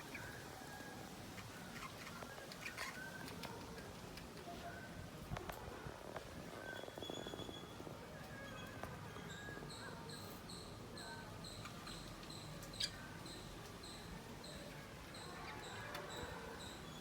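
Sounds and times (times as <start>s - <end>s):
small birds chirping: 0.0s - 4.2s, 8.5s - 17.0s
soft warbling chatter: 0.0s - 17.0s.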